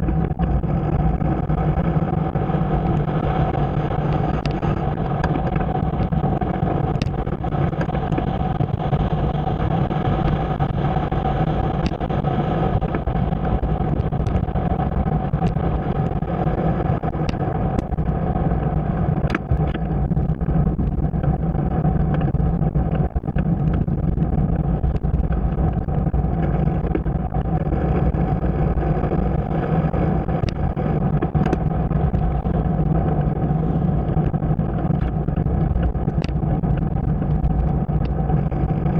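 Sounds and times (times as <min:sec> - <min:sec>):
ride running drone: 0:00.0 - 0:38.9
small ticks: 0:11.8 - 0:12.1, 0:34.2 - 0:38.7.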